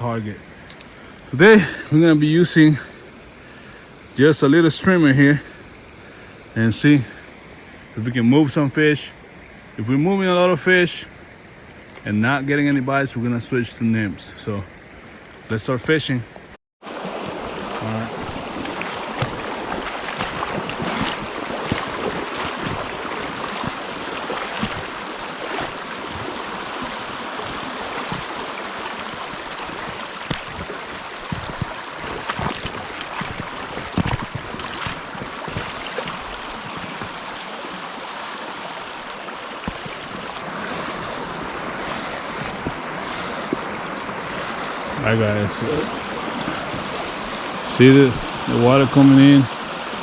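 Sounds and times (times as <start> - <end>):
creek water running: 0.0 - 50.0
knocks and thumps: 19.2 - 25.0, 29.7 - 37.2.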